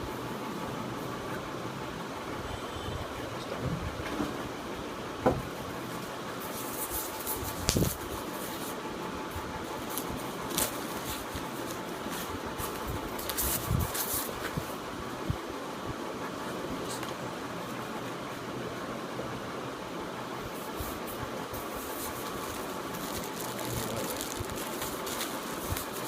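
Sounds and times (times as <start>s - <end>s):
steady background hiss: 0.0s - 26.0s
packaging rustling: 9.8s - 14.6s, 21.6s - 26.0s.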